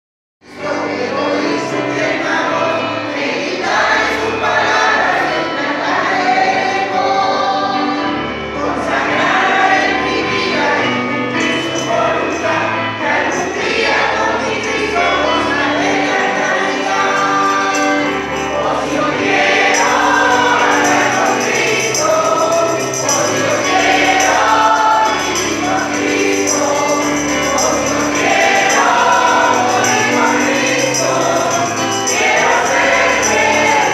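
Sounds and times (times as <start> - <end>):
choir singing gospel song: 0.4 - 33.9
jingling tambourine: 10.8 - 33.9.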